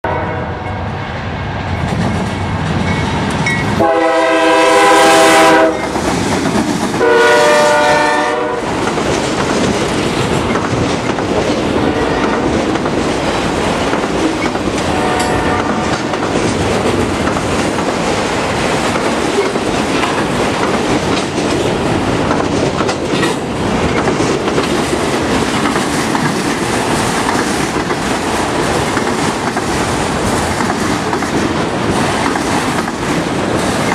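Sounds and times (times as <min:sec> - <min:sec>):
locomotive air horn blasts: 0:00.0 - 0:00.8, 0:03.8 - 0:05.9, 0:07.0 - 0:08.7, 0:11.9 - 0:12.4, 0:14.9 - 0:16.0
freight train passing on rails: 0:00.0 - 0:33.9.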